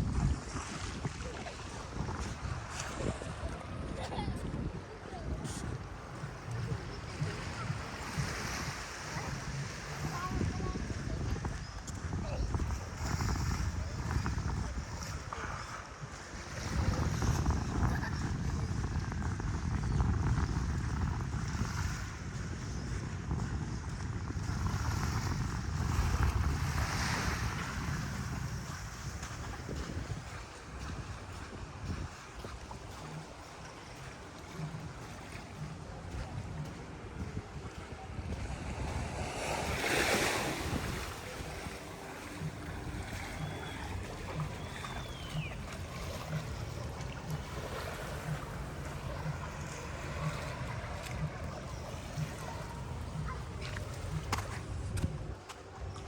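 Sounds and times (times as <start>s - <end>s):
surf washing onto beach: 0.0s - 56.0s
wind buffeting microphone: 0.0s - 56.0s
faint high chirp: 43.2s - 47.0s.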